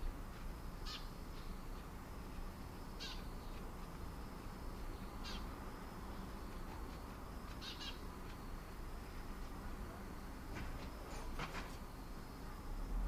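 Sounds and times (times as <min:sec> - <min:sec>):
low background hum: 0:00.0 - 0:13.0
bird short high calls: 0:00.8 - 0:01.1, 0:03.0 - 0:03.3, 0:05.2 - 0:05.5, 0:07.6 - 0:08.0.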